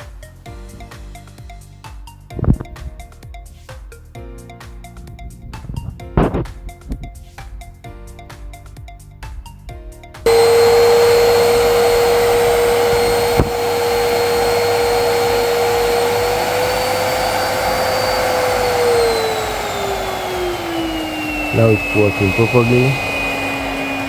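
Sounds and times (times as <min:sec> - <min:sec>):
vacuum cleaner motor whining: 0:10.2 - 0:24.0.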